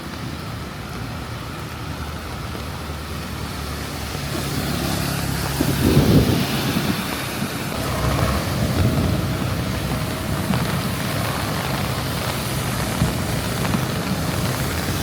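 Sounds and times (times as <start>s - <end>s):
rain falling: 0.0s - 15.0s
road traffic: 0.0s - 15.0s
vehicle engine running: 3.2s - 15.0s.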